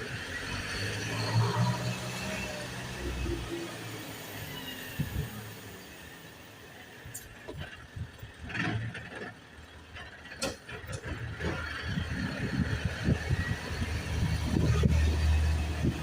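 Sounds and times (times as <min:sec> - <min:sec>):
garbage truck engine rumble: 0:06.7 - 0:16.0
knocks and clatter: 0:07.2 - 0:12.6.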